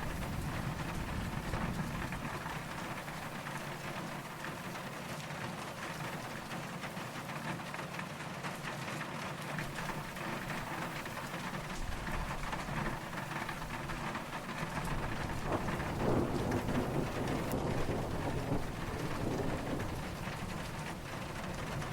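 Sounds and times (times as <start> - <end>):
distant thunder rumble: 0.0 - 4.8, 9.6 - 21.9
steady rain falling: 0.0 - 21.9.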